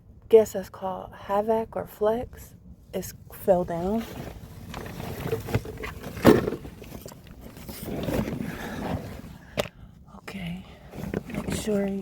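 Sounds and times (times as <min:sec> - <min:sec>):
shuffling noise: 0:03.7 - 0:09.5
knocks and scraping: 0:03.7 - 0:09.7, 0:10.9 - 0:12.0.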